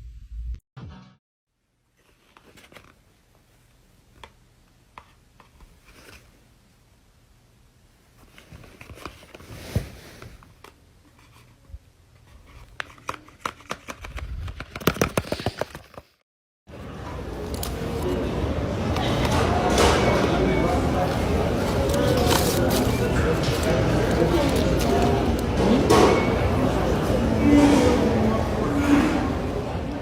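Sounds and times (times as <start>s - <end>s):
paper rustling and clicking: 12.5s - 16.2s, 21.0s - 25.5s.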